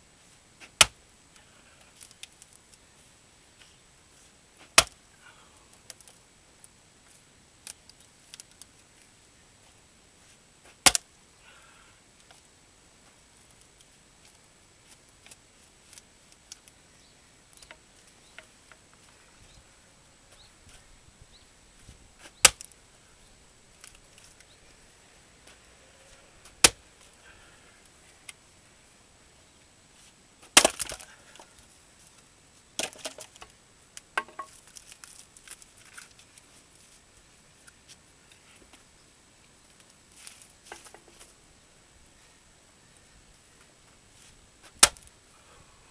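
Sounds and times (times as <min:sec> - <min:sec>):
axe striking wood: 0:04.7 - 0:05.0, 0:30.6 - 0:31.0
wood splitting and pieces falling: 0:22.2 - 0:22.8, 0:30.5 - 0:31.2, 0:32.8 - 0:33.5.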